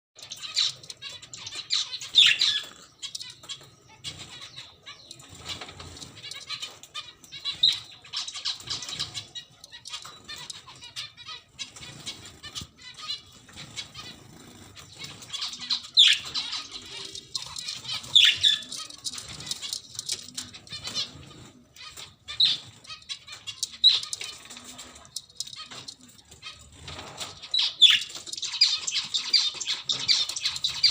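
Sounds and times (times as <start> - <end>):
budgies chirping: 0.2 - 30.9
sharp bird calls: 0.2 - 30.9.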